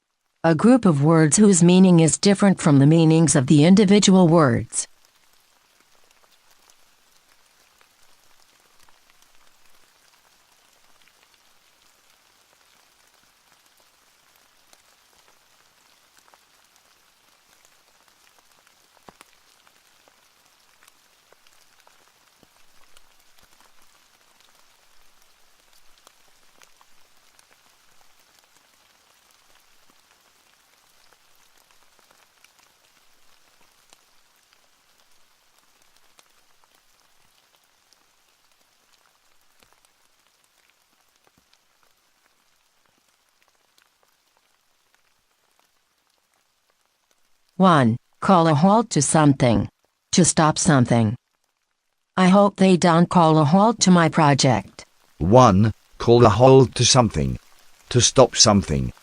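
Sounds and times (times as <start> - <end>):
rain falling: 0.0 - 59.0
raindrop ticks: 4.8 - 48.2.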